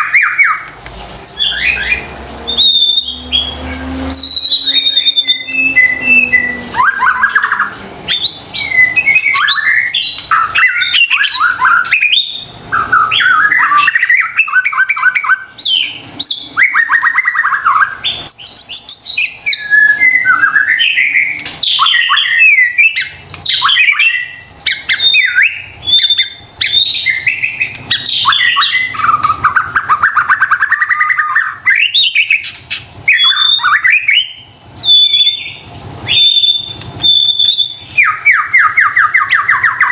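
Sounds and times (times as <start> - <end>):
songbird singing with whistles and trills: 0.0 - 39.9.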